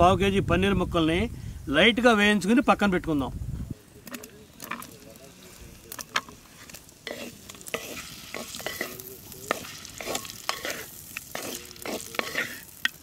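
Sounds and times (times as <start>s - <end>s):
cheese sizzling in butter: 3.8s - 13.0s
spatula scraping pot: 4.6s - 13.0s.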